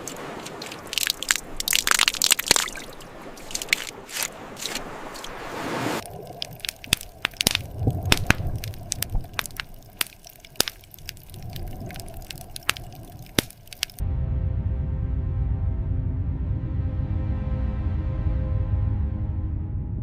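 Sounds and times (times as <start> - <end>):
sharp cracks and clicks: 6.0 - 14.0
low droning music: 14.0 - 20.0
low rumble: 14.0 - 20.0.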